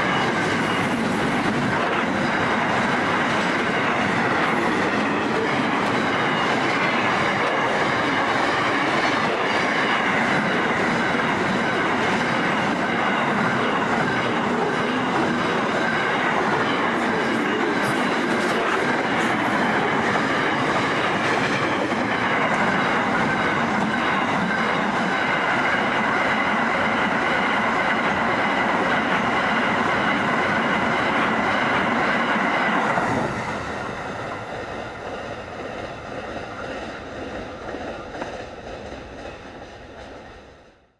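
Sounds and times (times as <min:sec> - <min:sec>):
freight train wheels rushing on rail: 0:00.0 - 0:40.9.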